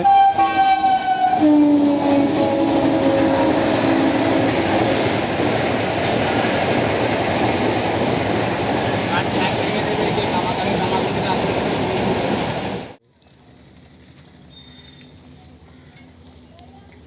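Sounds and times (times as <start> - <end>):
train horn: 0.0 - 5.1
train coaches rumbling on rails: 0.0 - 13.0.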